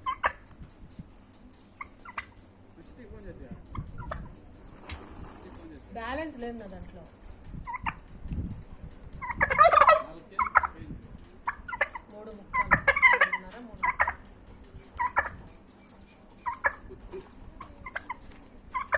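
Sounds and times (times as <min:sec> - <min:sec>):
turkeys gobbling: 0:00.0 - 0:00.4, 0:01.7 - 0:03.0, 0:03.6 - 0:05.6, 0:07.6 - 0:08.1, 0:09.2 - 0:18.9.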